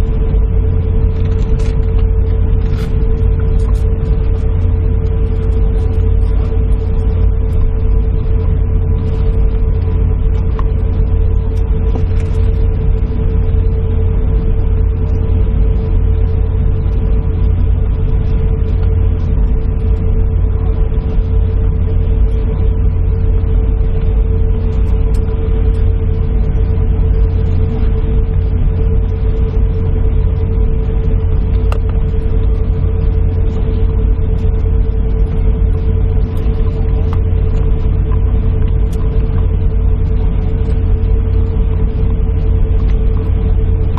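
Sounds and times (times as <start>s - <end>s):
airliner cabin rumble and hum: 0.0s - 43.9s
constant tone: 0.0s - 43.9s.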